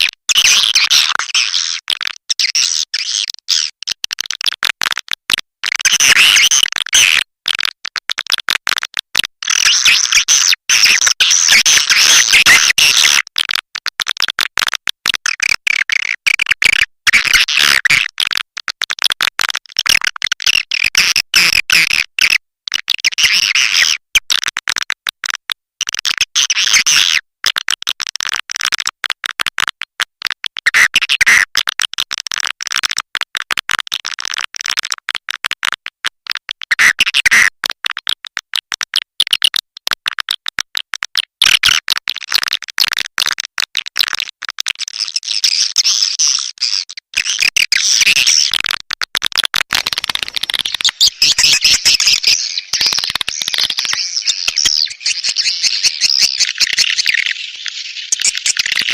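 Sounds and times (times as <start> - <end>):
swiftlet twittering chirps: 50.2 - 58.9.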